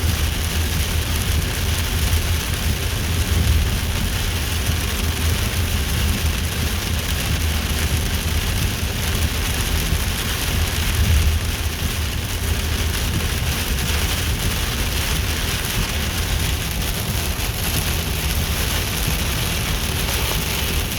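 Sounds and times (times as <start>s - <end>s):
steady rain: 0.0s - 20.9s
low rumble: 10.8s - 20.9s.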